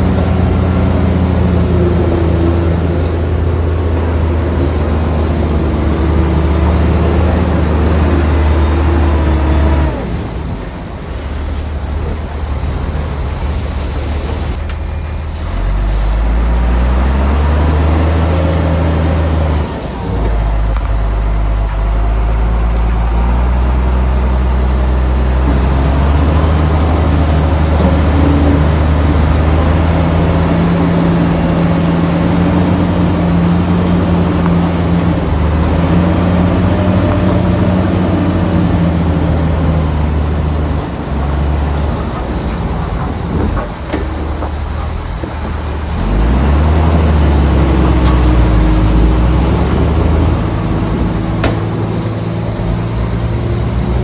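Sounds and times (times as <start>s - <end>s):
heavy diesel engine running: 0.0s - 54.0s
sharp knocks: 51.0s - 52.4s.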